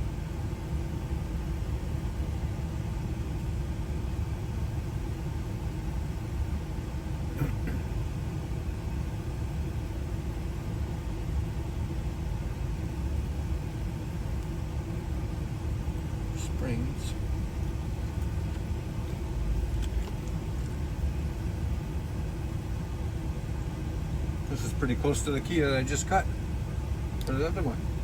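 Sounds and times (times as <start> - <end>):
engine idling: 13.3 - 28.0.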